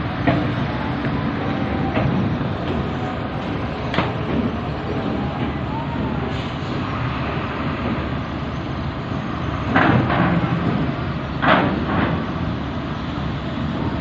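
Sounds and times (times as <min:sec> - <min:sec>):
truck engines: 0:00.0 - 0:14.0
truck wheels clanking over steel ramp: 0:00.0 - 0:14.0
wind rumble: 0:00.0 - 0:14.0.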